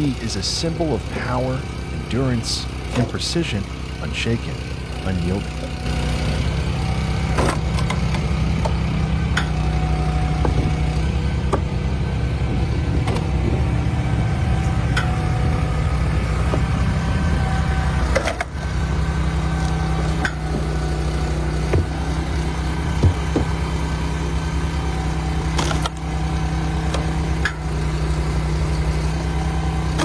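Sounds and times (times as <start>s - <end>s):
diesel engine running: 0.0s - 30.0s
wood cracking and knocking: 22.9s - 23.6s.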